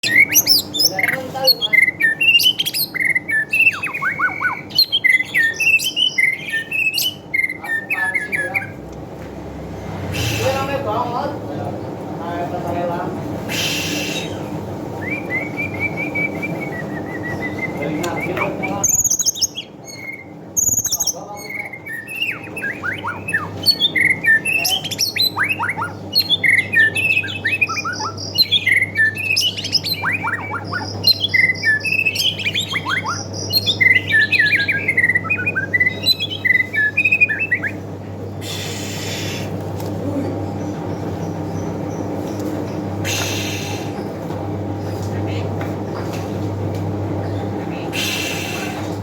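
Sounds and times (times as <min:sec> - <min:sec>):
bird singing whistled phrases: 0:00.0 - 0:08.8, 0:13.5 - 0:37.8.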